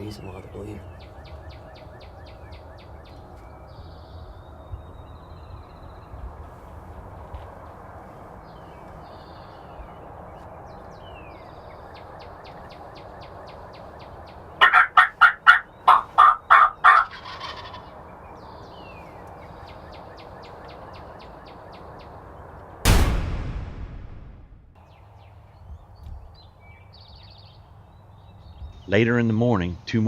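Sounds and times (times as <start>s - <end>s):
songbirds chirping: 0.0s - 22.8s, 23.9s - 30.0s
wild turkey gobbling: 14.5s - 18.0s.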